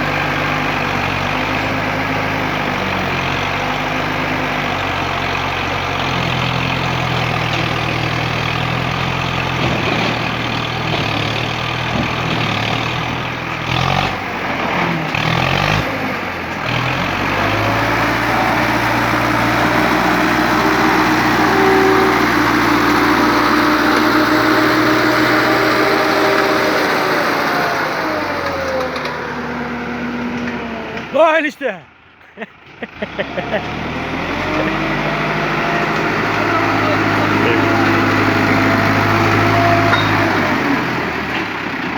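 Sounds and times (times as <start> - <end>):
heavy vehicle engine running: 0.0 - 41.9.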